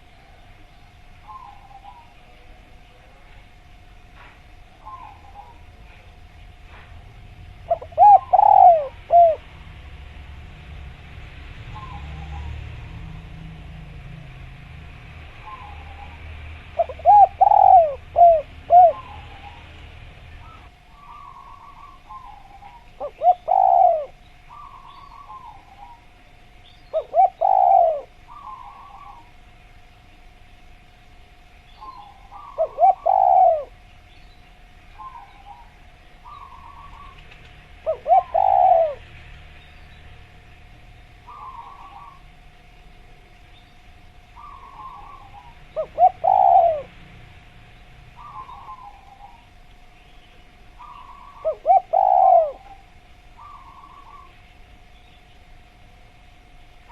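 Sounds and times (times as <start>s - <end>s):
dove cooing: 0.0s - 3.4s, 4.2s - 6.9s, 7.5s - 9.9s, 11.7s - 13.3s, 15.4s - 29.4s, 31.8s - 33.9s, 34.9s - 39.2s, 41.2s - 42.4s, 44.4s - 47.1s, 48.1s - 54.4s
faint hum: 0.0s - 56.9s.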